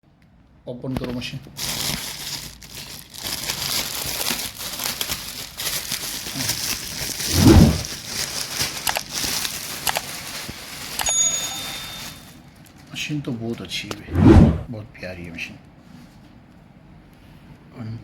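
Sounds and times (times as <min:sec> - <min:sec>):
plastic packaging crinkling: 0:01.5 - 0:12.9.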